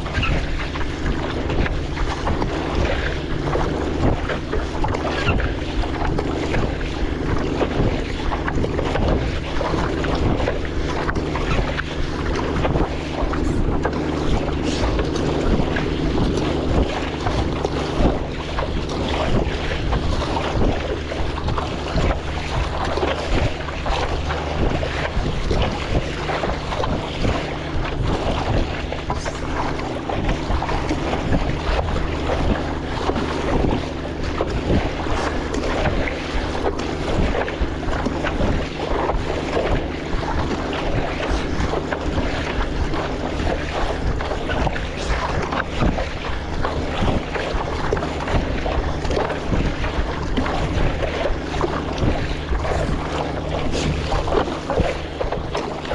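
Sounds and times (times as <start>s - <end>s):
water splashing around paddleboard: 0.0s - 55.9s
wind buffeting microphone: 0.0s - 55.9s.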